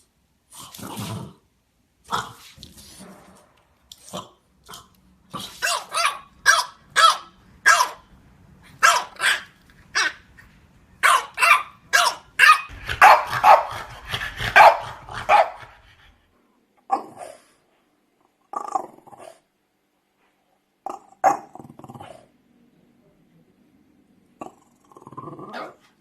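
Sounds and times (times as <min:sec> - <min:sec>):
dog barking: 0:05.4 - 0:08.1, 0:08.8 - 0:10.2, 0:11.0 - 0:15.8.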